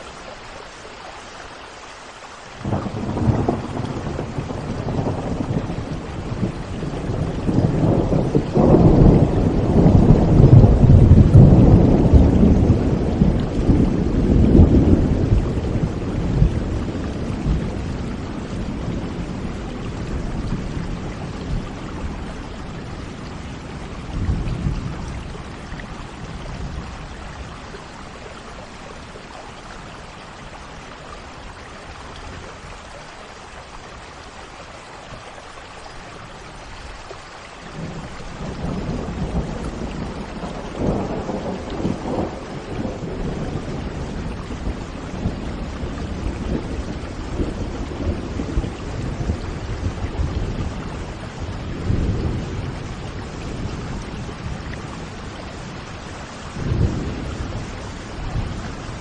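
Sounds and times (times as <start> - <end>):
steady rain: 0.0 - 59.0
rolling thunder: 2.6 - 27.7, 37.8 - 59.0.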